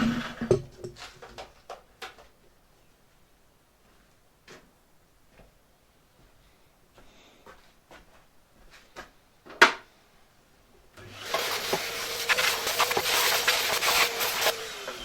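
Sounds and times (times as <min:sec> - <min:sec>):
vacuum cleaner running: 0:11.0 - 0:15.0
vacuum motor winding down whine: 0:14.5 - 0:15.0.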